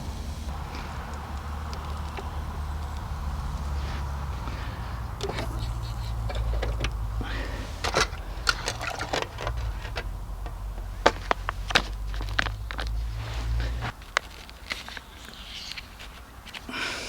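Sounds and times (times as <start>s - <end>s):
utensils and cookware clicking: 0.5s - 11.8s.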